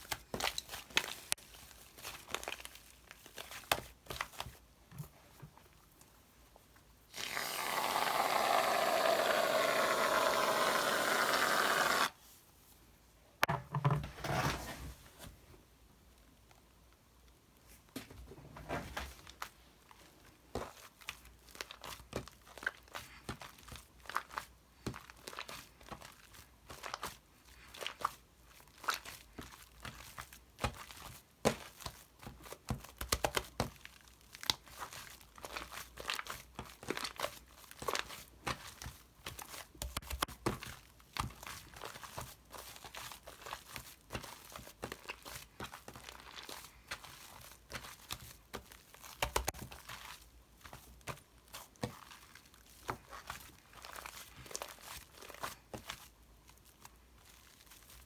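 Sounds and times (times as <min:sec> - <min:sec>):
crinkling and crackling: 0:00.0 - 0:06.2, 0:33.3 - 0:58.0.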